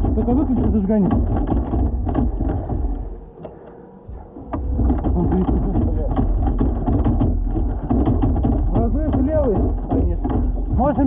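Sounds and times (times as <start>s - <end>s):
muffled indistinct voices: 2.4s - 7.0s, 8.5s - 11.0s.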